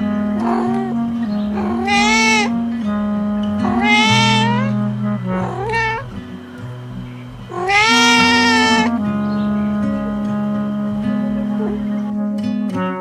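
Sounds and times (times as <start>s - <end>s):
background music: 0.0s - 13.0s
cat meowing: 0.4s - 2.6s, 3.5s - 9.0s, 9.9s - 12.0s.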